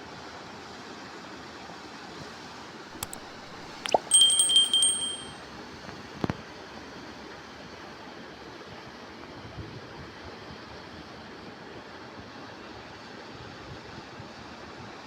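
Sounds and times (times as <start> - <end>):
rapid metallic clinks ringing: 3.0 - 5.4.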